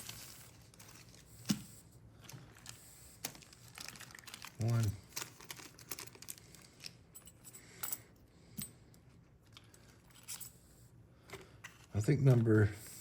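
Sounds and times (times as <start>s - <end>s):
packets rustling: 0.0s - 7.3s.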